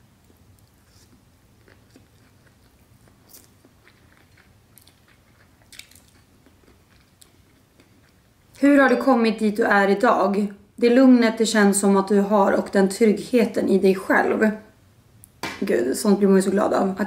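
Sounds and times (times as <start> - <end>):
chewing food: 0.2 - 8.3.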